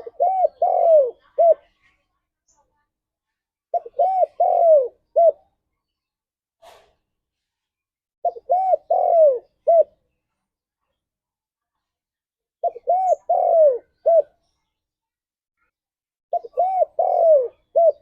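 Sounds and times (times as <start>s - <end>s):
dove cooing: 0.0s - 1.7s, 3.7s - 5.6s, 8.2s - 10.0s, 12.6s - 14.4s, 16.3s - 18.0s.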